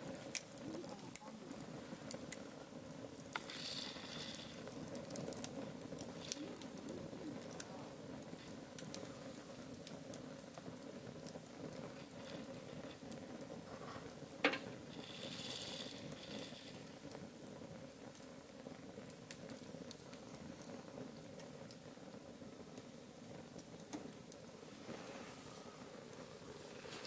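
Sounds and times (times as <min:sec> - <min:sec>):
campfire crackling and popping: 0:00.0 - 0:27.0.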